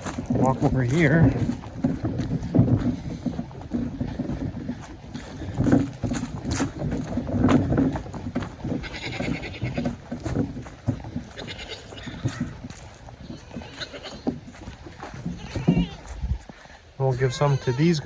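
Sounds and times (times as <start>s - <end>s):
goats bleating: 8.6s - 10.3s, 10.9s - 16.2s, 17.0s - 18.0s.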